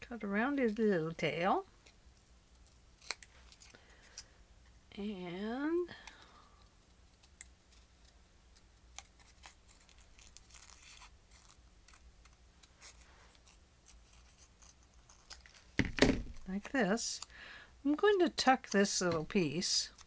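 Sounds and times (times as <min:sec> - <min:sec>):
scissors snipping paper: 0:07.1 - 0:15.6, 0:18.4 - 0:20.0.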